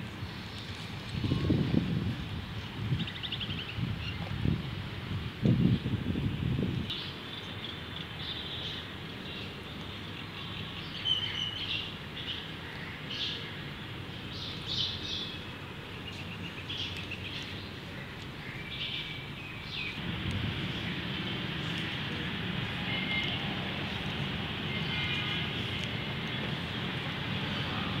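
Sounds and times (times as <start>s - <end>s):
small birds chirping: 6.8s - 28.0s
steady background hum: 17.7s - 28.0s.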